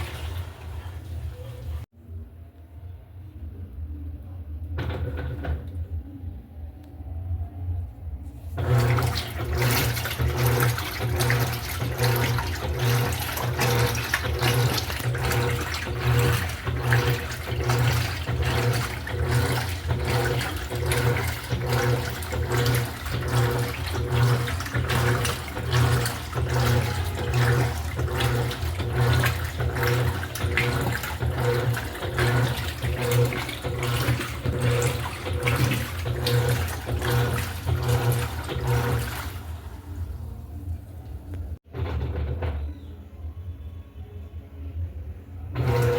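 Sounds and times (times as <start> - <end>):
water churning in drum: 0.0 - 1.8, 8.6 - 42.5, 45.6 - 45.9
washing machine motor hum: 0.0 - 45.9.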